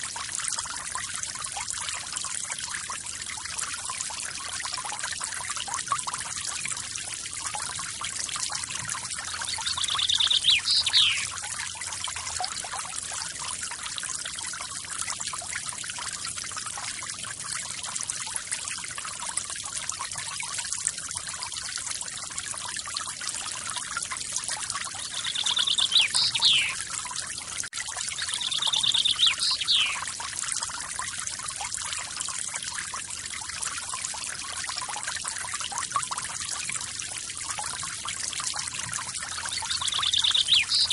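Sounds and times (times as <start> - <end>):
bird trilled call: 9.4 - 11.3, 25.0 - 26.8, 28.2 - 30.0, 39.5 - 40.9.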